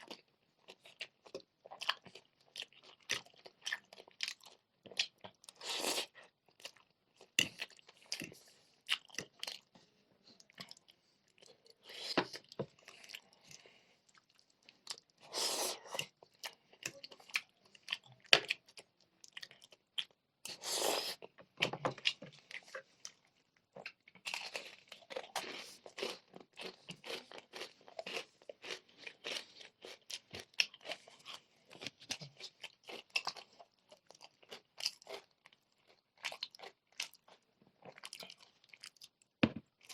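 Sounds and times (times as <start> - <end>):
crunchy bites and chewing: 23.7 - 39.0.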